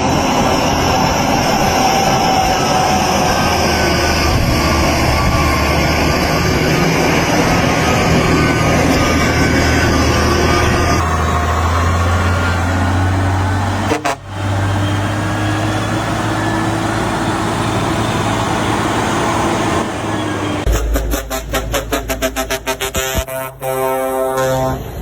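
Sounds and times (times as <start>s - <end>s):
heavy truck engine humming: 0.0s - 25.0s
rhythmic pulsing sound: 20.7s - 23.6s.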